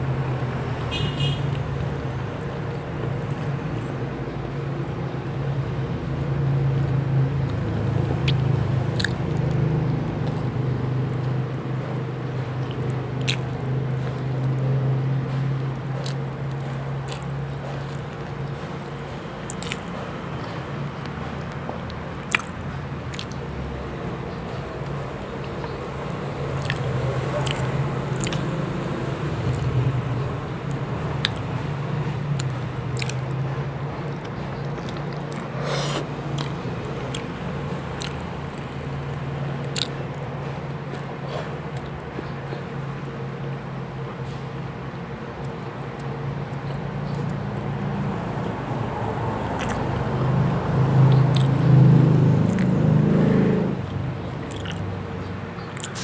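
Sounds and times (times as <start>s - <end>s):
chewing food: 6.8s - 23.6s, 24.3s - 29.8s, 30.7s - 31.6s, 32.4s - 42.8s, 49.6s - 52.8s, 54.3s - 55.0s, 55.6s - 56.0s
wet mouth clicks and squelches: 8.2s - 11.6s, 12.6s - 14.6s, 15.9s - 23.4s, 24.8s - 28.6s, 29.4s - 29.8s, 30.7s - 31.5s, 32.4s - 42.6s, 49.6s - 50.1s, 51.0s - 51.8s, 52.4s - 52.8s, 54.4s - 55.0s, 55.6s - 56.0s.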